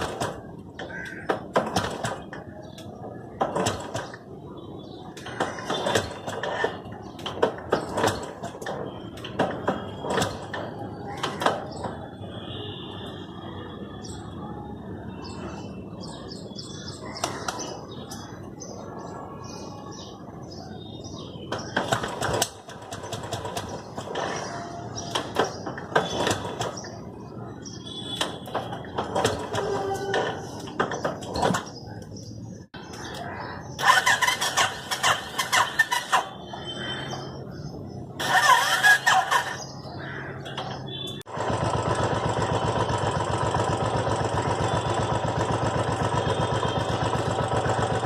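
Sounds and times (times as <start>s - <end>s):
sharp knocks and clatter: 0.0s - 4.2s, 5.2s - 12.1s, 21.5s - 27.0s, 28.2s - 31.8s
small birds chirping: 12.7s - 41.3s.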